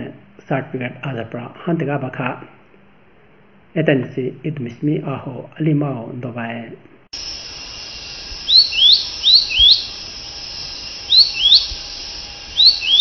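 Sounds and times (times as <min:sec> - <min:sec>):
bird chirping: 0:07.2 - 0:13.0
steady hiss: 0:07.2 - 0:13.0.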